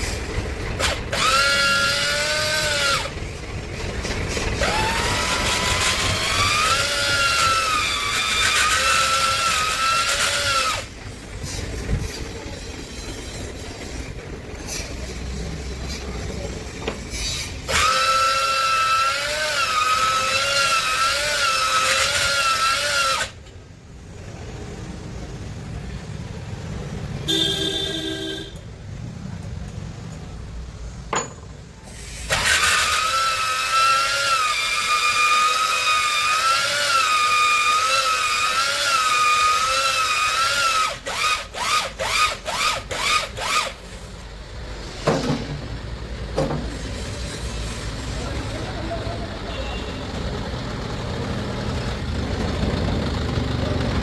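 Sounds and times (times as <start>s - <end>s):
electric drill whining: 0.7s - 3.2s, 4.1s - 11.0s, 17.6s - 23.5s, 32.3s - 44.0s.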